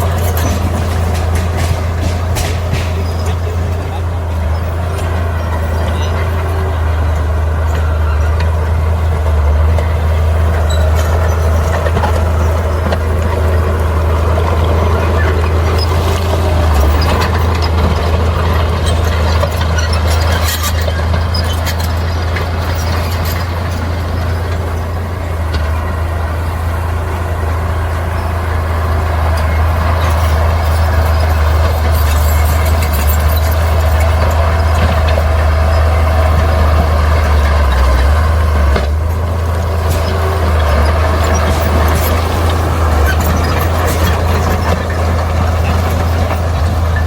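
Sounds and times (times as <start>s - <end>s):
diesel machinery engine drone: 0.0s - 47.0s.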